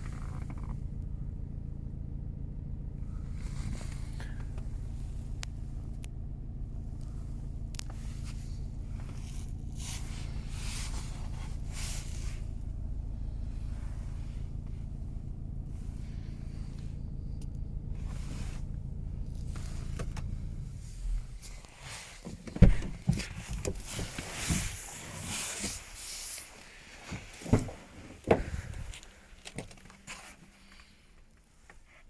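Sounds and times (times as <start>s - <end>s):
diesel engine idling: 0.0s - 31.8s
brief rustling: 18.0s - 31.0s.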